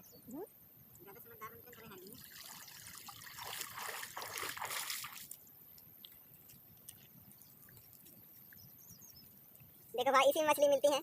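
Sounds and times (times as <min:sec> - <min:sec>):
water splashing and sloshing: 0:01.7 - 0:08.6.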